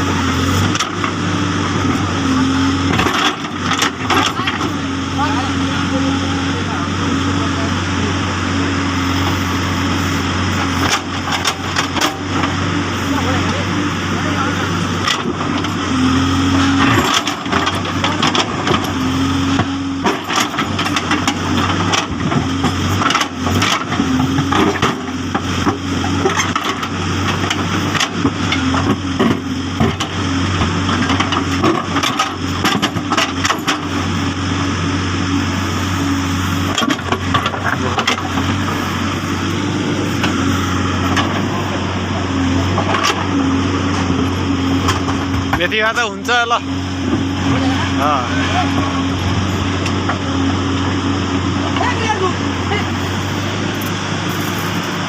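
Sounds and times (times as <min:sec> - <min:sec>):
diesel engine running under load: 0:00.0 - 0:55.0
sharp knocks and clatter: 0:19.6 - 0:33.9.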